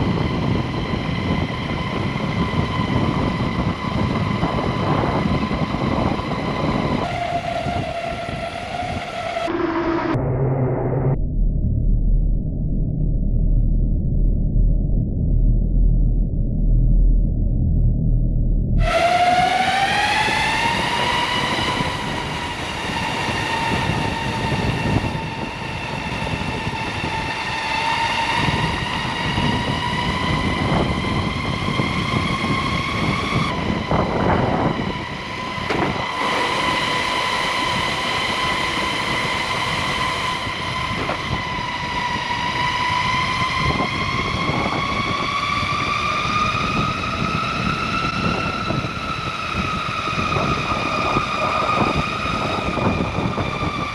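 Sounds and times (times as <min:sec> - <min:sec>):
electric motors whining: 0:00.0 - 0:11.0, 0:18.8 - 0:53.9
wind rushing: 0:18.7 - 0:53.9
wheels rolling on path: 0:34.5 - 0:44.2.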